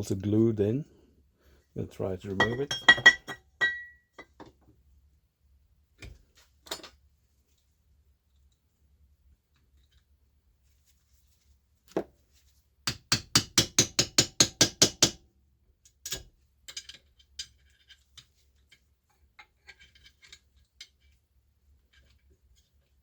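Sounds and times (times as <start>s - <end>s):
hammer tapping on metal: 12.9s - 15.2s.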